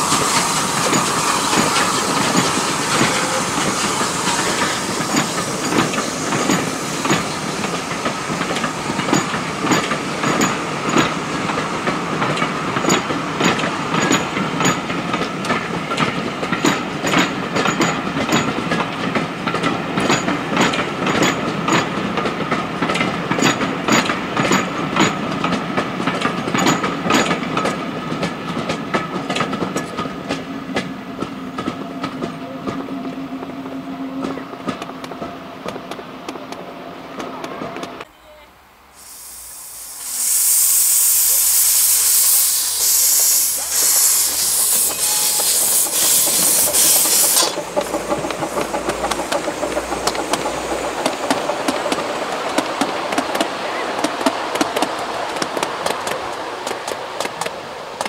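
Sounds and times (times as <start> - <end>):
train wheels clicking over rail joints: 0.0 - 33.6, 34.2 - 38.1, 40.0 - 58.0
train rumble: 0.0 - 58.0
faint steam hiss: 38.1 - 58.0.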